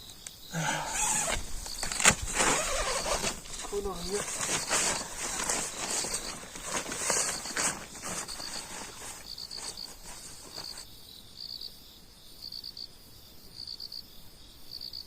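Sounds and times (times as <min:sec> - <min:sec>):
rustling: 0:00.0 - 0:10.9
cricket chirping: 0:00.0 - 0:15.0.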